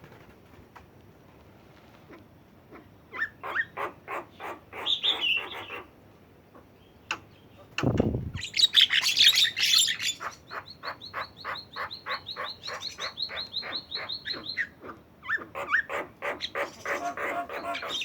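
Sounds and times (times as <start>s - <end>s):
bird harsh chatter: 8.4s - 18.0s.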